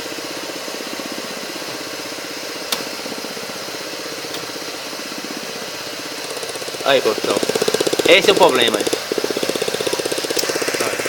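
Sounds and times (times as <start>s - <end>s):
car engine idling: 0.0s - 11.0s
rapid even ticking: 6.0s - 11.0s.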